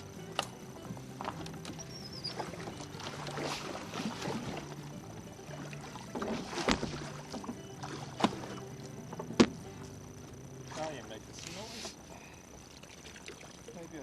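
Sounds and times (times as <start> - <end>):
steady low hum: 0.0 - 14.0
water splashing and sloshing: 0.0 - 14.0.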